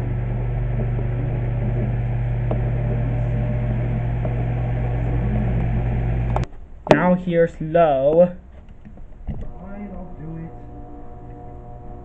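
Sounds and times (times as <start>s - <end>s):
table fan running: 0.0s - 6.5s.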